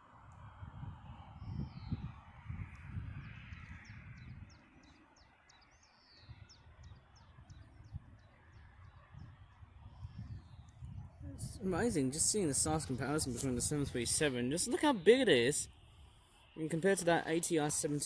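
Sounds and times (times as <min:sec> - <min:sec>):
wind rumbling on microphone: 0:00.0 - 0:14.5.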